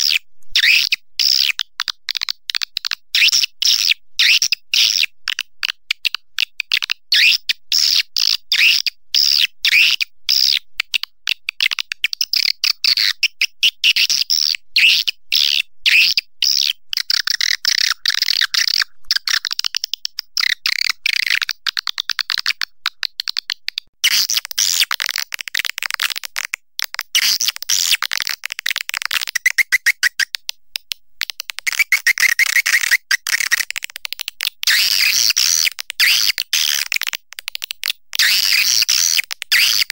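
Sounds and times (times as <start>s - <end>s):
swiftlet chirps and twitters: 29.2s - 30.3s, 31.6s - 33.8s.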